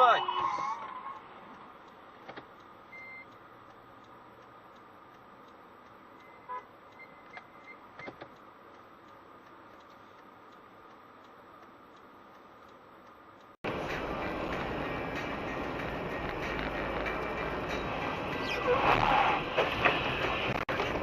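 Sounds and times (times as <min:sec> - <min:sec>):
short electronic beeps: 0:02.9 - 0:03.3, 0:06.2 - 0:08.2.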